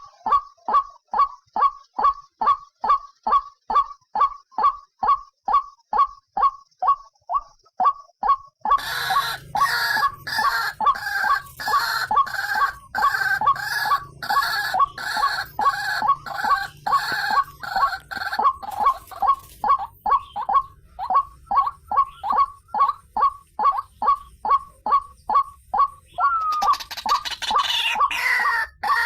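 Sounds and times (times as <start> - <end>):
louder waterhen calls: 0.0 - 29.0
waterhen calling: 0.0 - 29.0.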